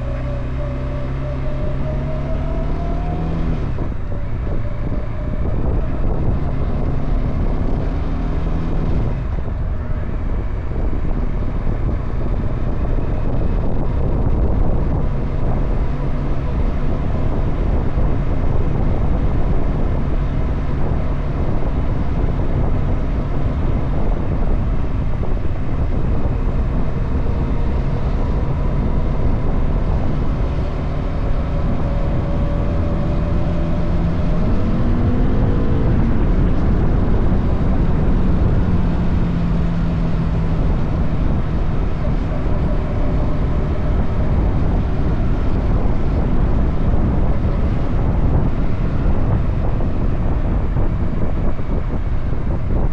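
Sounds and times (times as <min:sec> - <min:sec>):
wind on microphone: 0:00.0 - 0:52.9
motorcycle engine running: 0:08.6 - 0:52.9.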